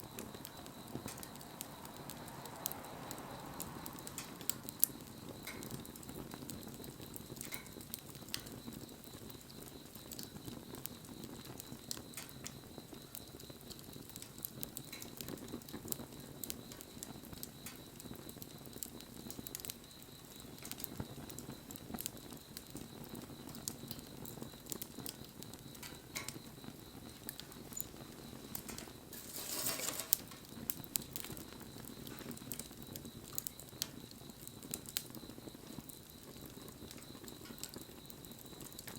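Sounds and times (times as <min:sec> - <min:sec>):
bonfire crackling and popping: 0:00.0 - 0:38.9
rush of flame: 0:25.7 - 0:32.6.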